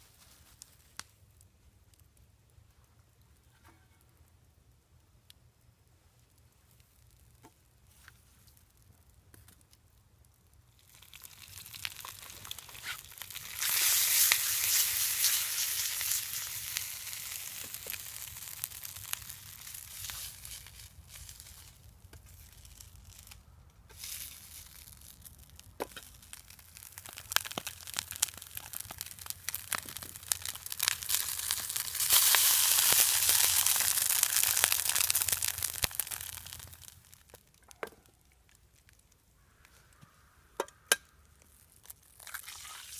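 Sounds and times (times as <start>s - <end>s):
pops and crackles: 0.0s - 4.3s, 6.2s - 42.9s
food sizzling in a frying pan: 10.8s - 21.7s, 23.9s - 37.3s.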